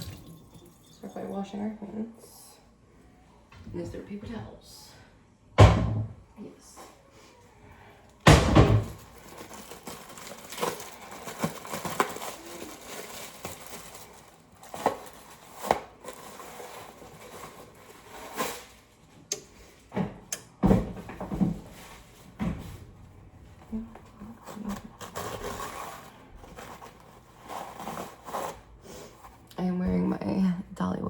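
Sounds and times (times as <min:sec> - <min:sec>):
tap water running: 0:00.0 - 0:01.3.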